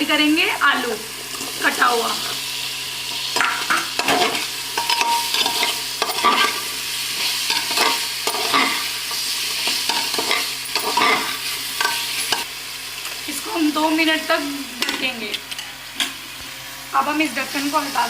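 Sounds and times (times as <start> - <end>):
food sizzling in oil: 0.0 - 18.0
spoon scraping a pot: 3.1 - 6.6.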